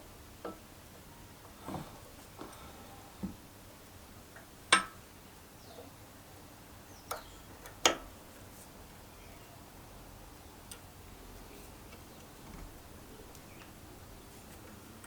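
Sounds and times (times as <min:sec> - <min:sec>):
sharp knocks and clicks of tools: 0:04.4 - 0:05.0.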